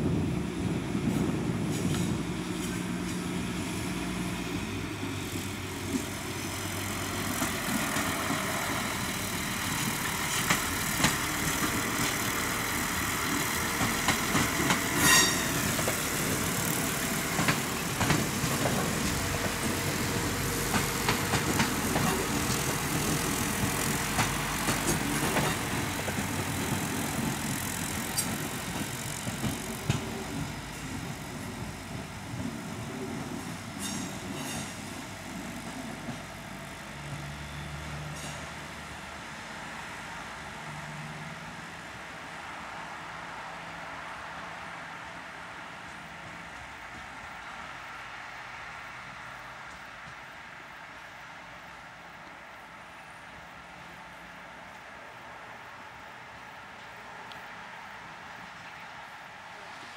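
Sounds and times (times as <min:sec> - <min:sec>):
wheels clicking over rail joints: 0:01.0 - 0:36.4
sharp wheel squeal: 0:14.9 - 0:15.8.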